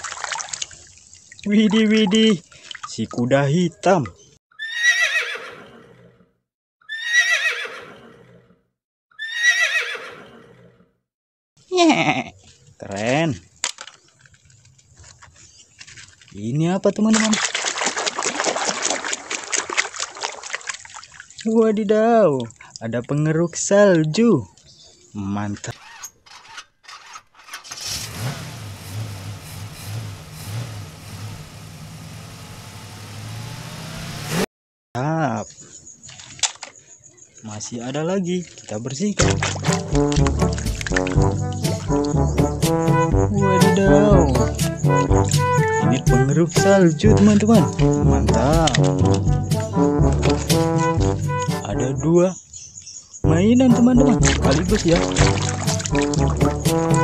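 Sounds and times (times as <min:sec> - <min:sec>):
horse whinnying: 0:04.5 - 0:06.2, 0:06.8 - 0:10.8
motor pulsing hum: 0:29.1 - 0:34.4.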